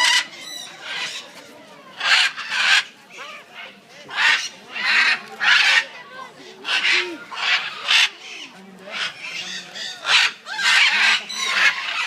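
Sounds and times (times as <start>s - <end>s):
harsh raspy bird squawks: 6.6s - 12.0s.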